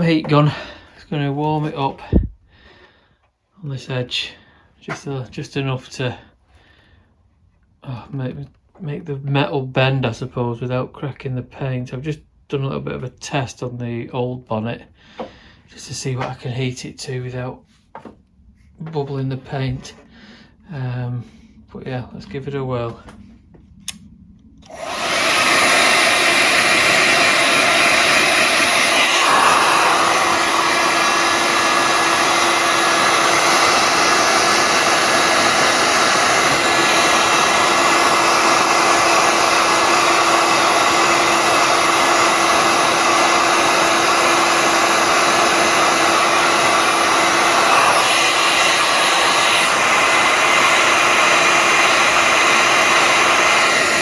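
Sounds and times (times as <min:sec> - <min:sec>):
heat gun fan blowing: 0:24.6 - 0:54.0.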